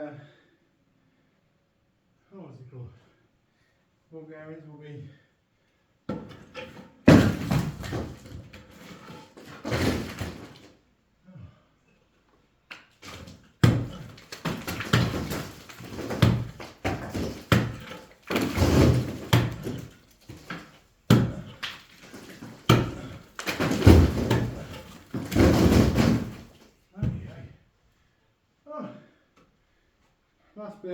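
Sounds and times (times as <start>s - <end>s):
bricks knocking and thudding: 6.1s - 10.7s, 13.0s - 27.4s
rubble rattling: 6.4s - 10.7s, 13.0s - 26.7s.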